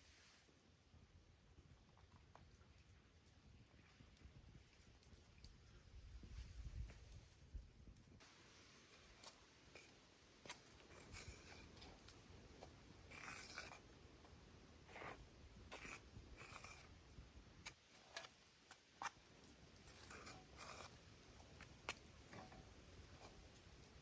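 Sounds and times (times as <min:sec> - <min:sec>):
scraping and rubbing strokes: 0:08.4 - 0:24.0.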